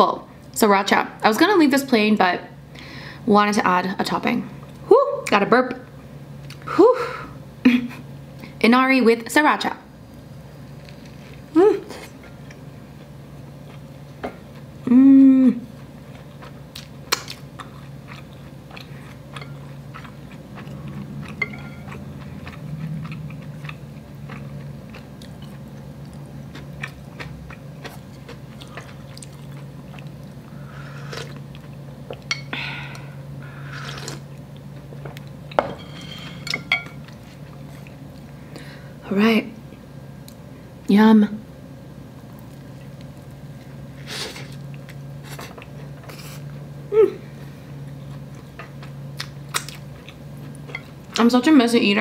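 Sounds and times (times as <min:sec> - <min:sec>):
low steady hum: 0:00.0 - 0:52.0
person humming: 0:14.8 - 0:15.7, 0:46.9 - 0:47.3
close-miked chewing: 0:15.7 - 0:30.5, 0:47.9 - 0:51.2.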